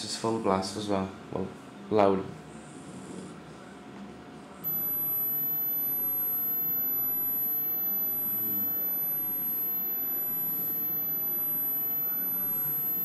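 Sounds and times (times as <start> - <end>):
high-pitched test tone: 4.7 - 13.0.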